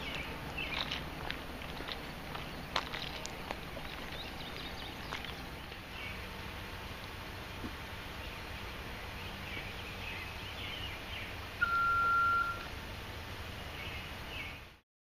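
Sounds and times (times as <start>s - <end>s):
birds chirping: 0.0s - 14.8s
outdoor background noise: 0.0s - 14.8s
electronic beep: 11.6s - 12.7s.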